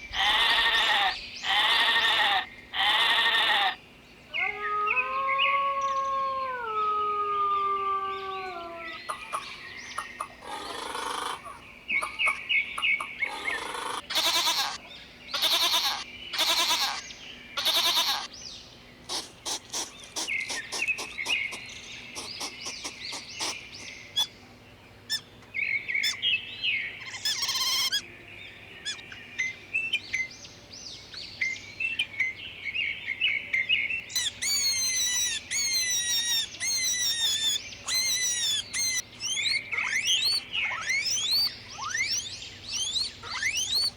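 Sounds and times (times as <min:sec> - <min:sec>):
goat bleating: 0:00.2 - 0:03.8, 0:14.0 - 0:14.8, 0:15.4 - 0:17.0, 0:17.6 - 0:18.3
chickens and small birds chirping: 0:07.5 - 0:43.9.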